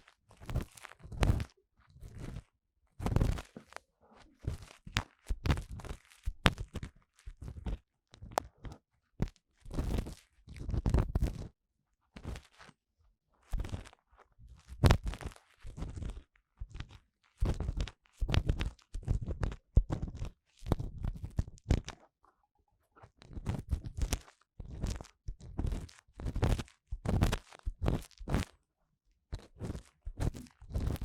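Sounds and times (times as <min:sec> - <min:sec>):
scratching inside microphone ear: 0:29.6 - 0:31.0.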